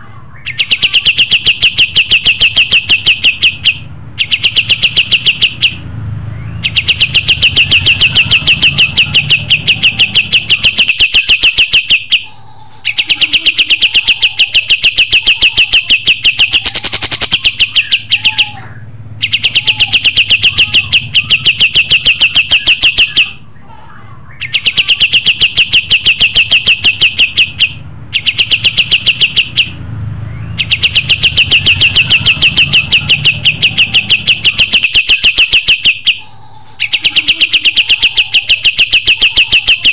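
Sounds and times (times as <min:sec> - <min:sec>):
songbird singing fast trills: 0:00.4 - 0:12.3.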